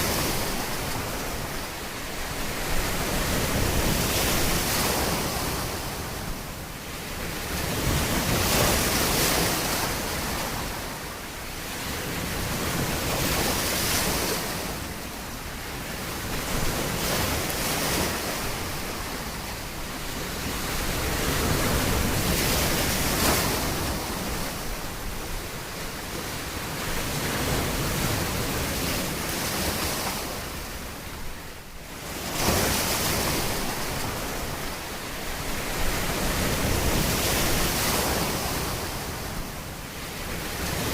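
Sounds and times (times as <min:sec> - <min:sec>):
waves breaking on shore: 0:00.0 - 0:40.9.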